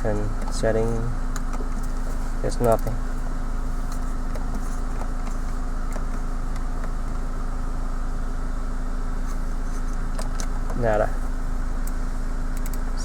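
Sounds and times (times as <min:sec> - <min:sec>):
car engine idling: 0:00.0 - 0:13.0
control knobs clicking: 0:00.1 - 0:03.0, 0:11.8 - 0:12.8.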